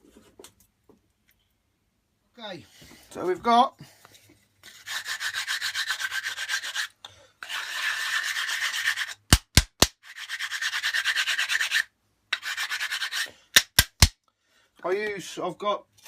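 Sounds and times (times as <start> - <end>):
hand sanding with abrasive paper: 4.6 - 9.2, 10.0 - 13.3.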